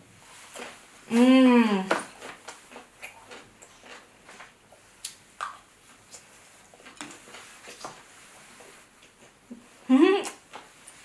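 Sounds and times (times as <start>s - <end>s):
wet mouth clicks and smacks: 5.0s - 6.2s.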